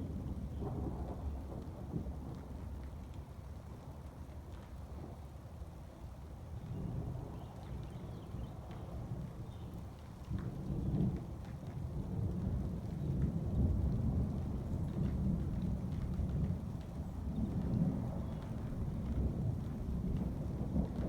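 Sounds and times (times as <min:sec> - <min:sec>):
rain falling: 0:00.0 - 0:21.0
rolling thunder: 0:10.4 - 0:21.0.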